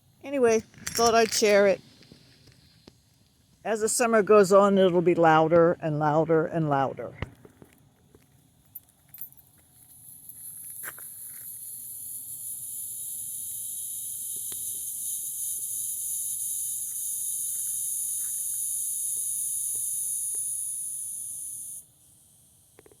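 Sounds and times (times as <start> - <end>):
cicadas buzzing: 0.0 - 4.9, 9.9 - 23.0.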